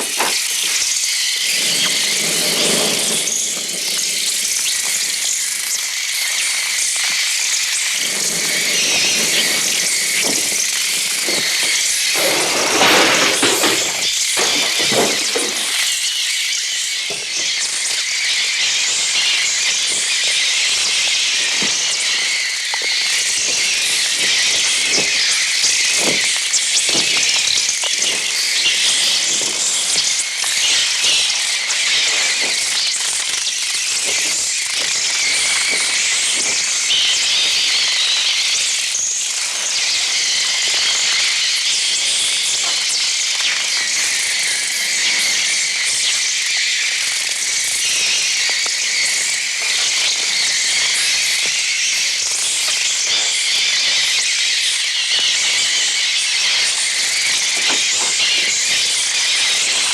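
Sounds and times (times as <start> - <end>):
wings fluttering: 0.0 - 16.0
sparrows shrieking and chirping: 0.0 - 59.9.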